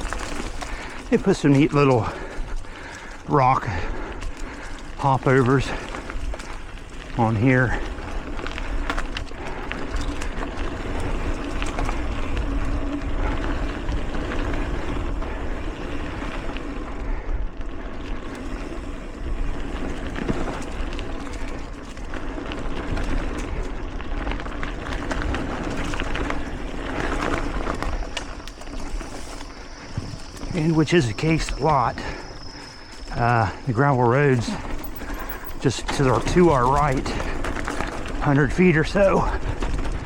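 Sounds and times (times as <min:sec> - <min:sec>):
bike rattling: 0:00.0 - 0:40.0
tyres rolling on dirt: 0:00.0 - 0:40.0
wind rumble on microphone: 0:34.5 - 0:40.0.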